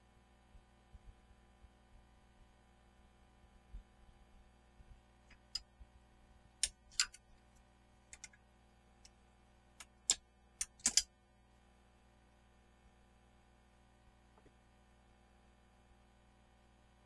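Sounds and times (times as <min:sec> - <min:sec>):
tools clicking and tapping: 0:05.3 - 0:05.6, 0:06.6 - 0:07.2, 0:08.1 - 0:08.4, 0:09.8 - 0:11.0.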